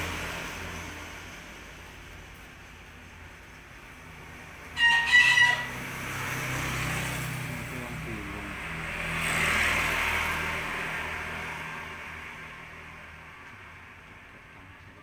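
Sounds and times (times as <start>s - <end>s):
vehicle passing: 0.0s - 15.0s
bird call: 4.8s - 5.7s.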